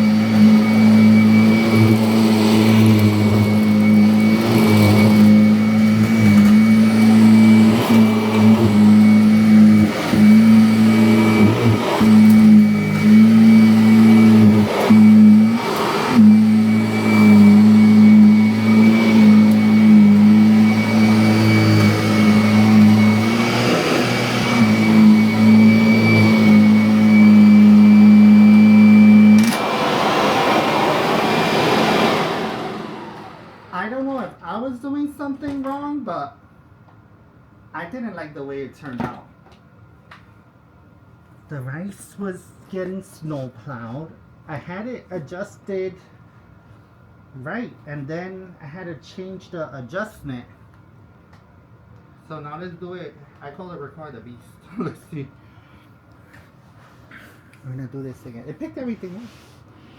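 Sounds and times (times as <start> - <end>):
vacuum cleaner motor hum: 0.0 - 33.8.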